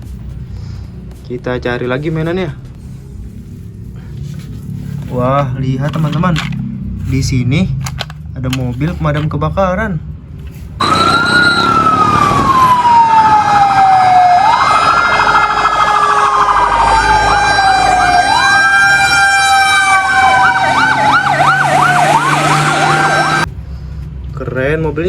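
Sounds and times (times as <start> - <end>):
toy fire engine siren: 10.8 - 23.5.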